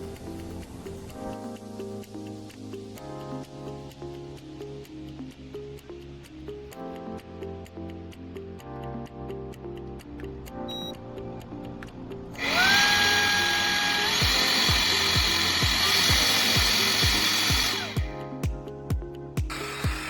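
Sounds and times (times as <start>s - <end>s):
background music with beat: 0.0s - 20.0s
handheld vacuum running: 12.4s - 18.2s, 19.4s - 20.0s.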